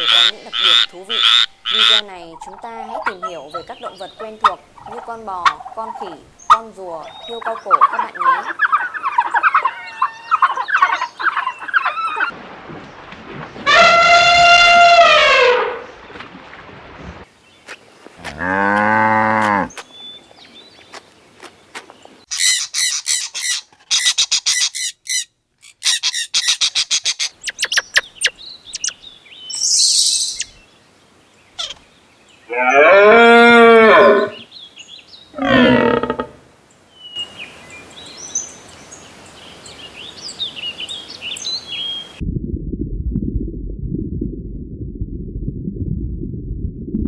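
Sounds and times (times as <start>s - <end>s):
songbird chirps: 0.0s - 13.6s, 17.2s - 18.5s, 19.4s - 33.0s, 34.0s - 42.2s
cow mooing: 18.2s - 19.7s, 32.5s - 34.4s, 35.4s - 36.4s.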